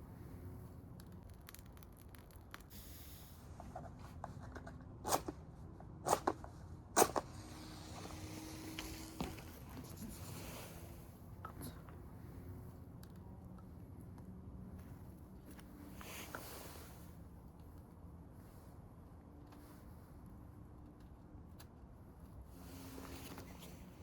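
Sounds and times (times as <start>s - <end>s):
fire popping: 0.3s - 3.3s
wood bonfire crackling: 0.5s - 3.2s.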